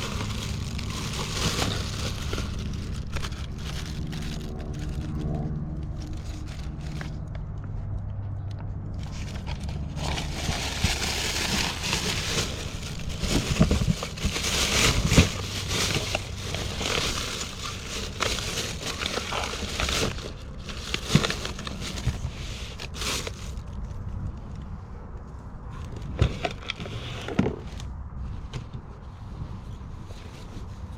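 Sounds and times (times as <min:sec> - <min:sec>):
plastic bags crinkling: 0:00.0 - 0:07.3, 0:09.0 - 0:23.8.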